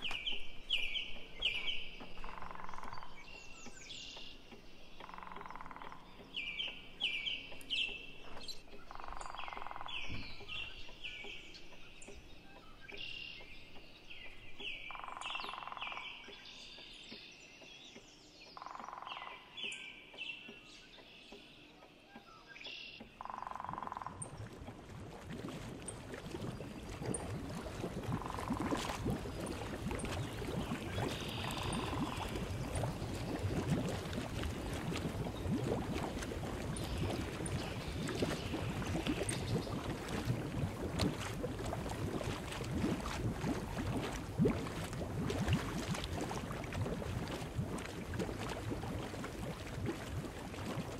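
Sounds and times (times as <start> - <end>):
small birds chirping: 26.4 - 34.1.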